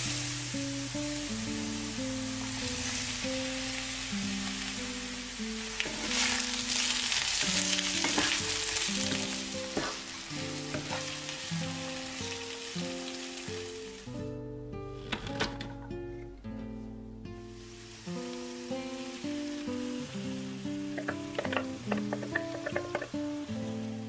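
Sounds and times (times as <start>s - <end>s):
vegetables sizzling in oil: 0.0s - 14.2s, 17.2s - 24.0s
background music: 0.0s - 24.0s
wooden spatula scraping a pan: 5.8s - 6.5s, 7.8s - 10.0s, 10.7s - 11.2s.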